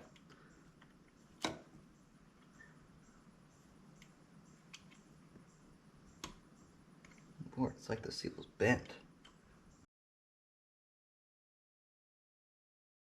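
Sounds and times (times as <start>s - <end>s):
faint clicks: 3.9s - 7.3s.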